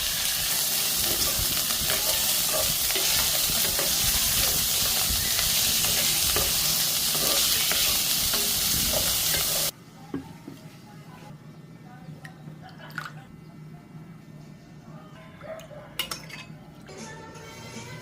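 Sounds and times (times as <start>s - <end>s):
food sizzling in a pan: 0.0s - 9.7s.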